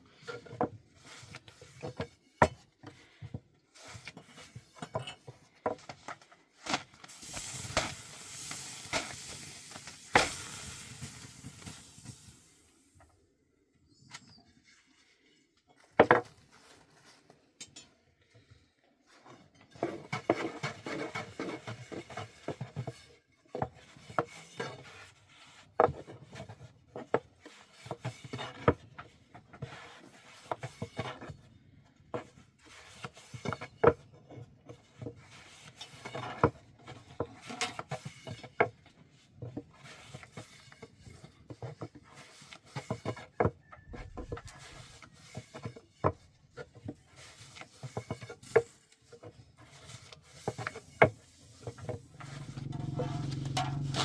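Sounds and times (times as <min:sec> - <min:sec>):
rubbing and scraping on wood: 0:19.7 - 0:31.4, 0:32.1 - 0:54.0.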